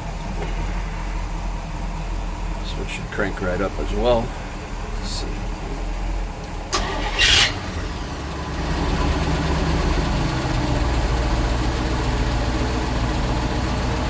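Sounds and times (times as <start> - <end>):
boat engines idling: 0.0 - 14.0.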